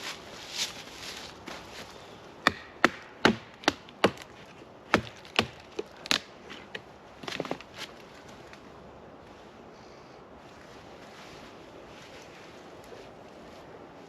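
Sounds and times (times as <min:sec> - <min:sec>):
firewood cracking: 0:02.4 - 0:08.6.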